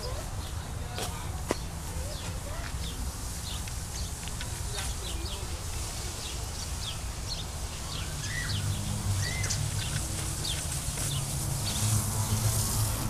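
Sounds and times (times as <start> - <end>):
birds chirping: 0.0 - 13.0
bird whistled calls: 7.9 - 9.6.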